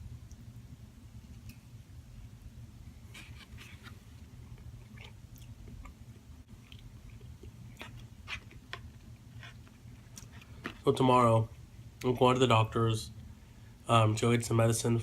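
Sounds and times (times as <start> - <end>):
steady low hum: 0.0 - 15.0
person chewing food: 3.0 - 10.8.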